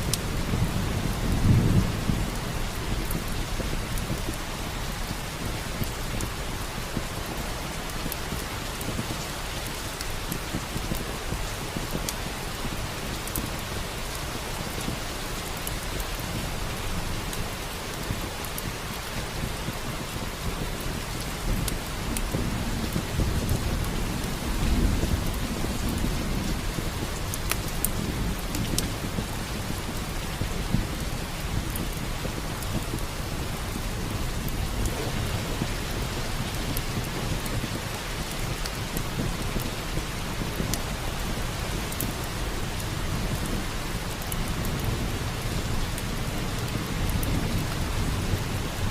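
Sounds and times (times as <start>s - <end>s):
heavy rain: 0.0s - 48.9s
wood fire crackling: 0.0s - 48.9s
thunder rumble: 21.4s - 48.9s.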